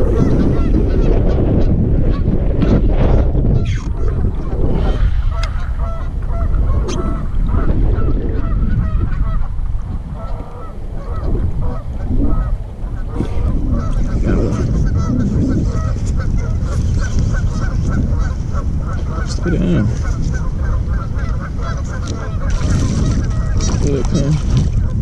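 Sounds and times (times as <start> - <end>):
geese honking: 0.0 - 1.2, 4.9 - 9.5, 10.1 - 24.1
wind rumble on microphone: 0.0 - 25.0.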